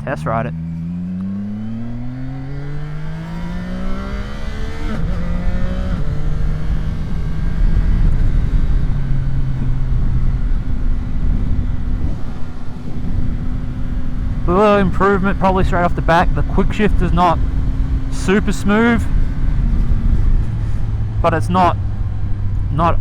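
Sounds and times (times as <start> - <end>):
wind rush: 6.4 - 14.5.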